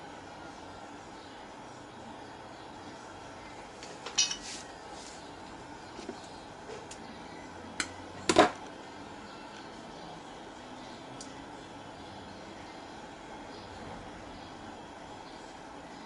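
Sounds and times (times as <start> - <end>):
metal tools clinking: 4.1 - 4.6.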